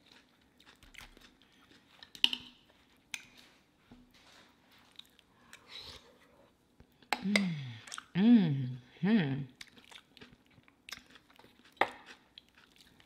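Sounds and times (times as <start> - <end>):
soft chewing and crackles: 0.0 - 8.2, 9.5 - 13.0.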